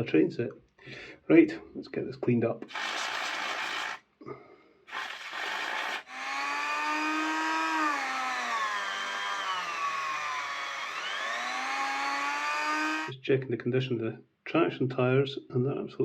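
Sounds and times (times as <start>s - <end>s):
short hissing bursts: 2.7s - 4.0s
small electric motor whining: 2.7s - 4.0s, 4.9s - 13.1s.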